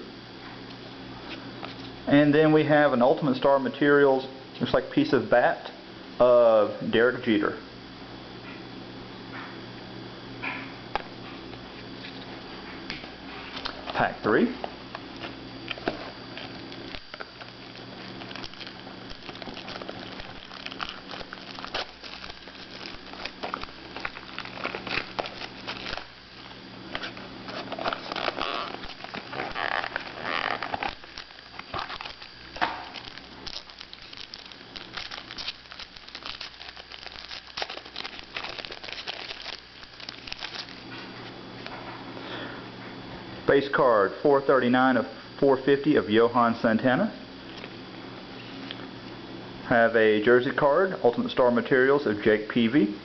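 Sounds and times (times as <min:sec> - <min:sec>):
faint low hum: 0:00.0 - 0:53.0
wrapper and cards crinkling: 0:15.2 - 0:41.0.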